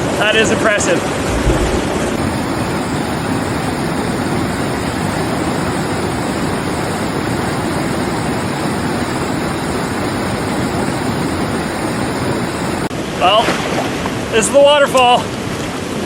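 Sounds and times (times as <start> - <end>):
waterfall rushing: 1.1 - 12.9.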